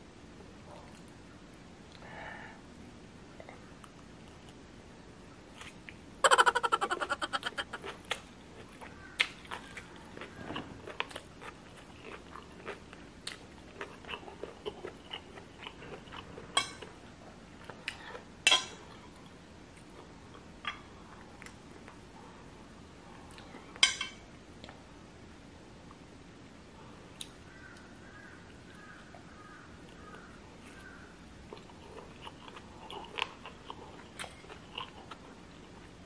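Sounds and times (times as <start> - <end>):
chewing and wet mouth sounds: 5.5 - 17.0, 29.9 - 36.0.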